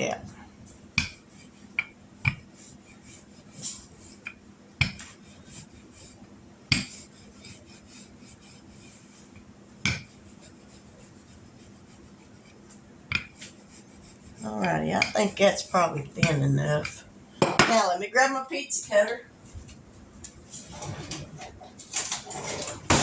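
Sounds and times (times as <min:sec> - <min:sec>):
rolling pin rubbing dough: 0:00.0 - 0:23.0
rolling pin knocking board: 0:01.0 - 0:01.2, 0:01.8 - 0:02.5, 0:04.3 - 0:05.2, 0:09.8 - 0:10.2, 0:13.1 - 0:13.6.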